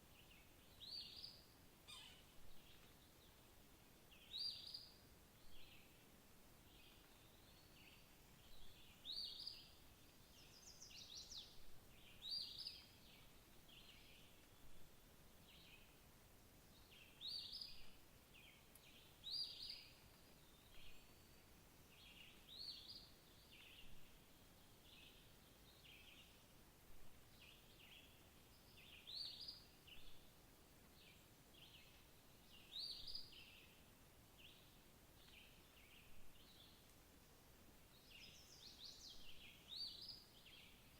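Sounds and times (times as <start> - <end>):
quiet background hiss: 0.0 - 40.9
faint high bird chirps: 0.9 - 2.9.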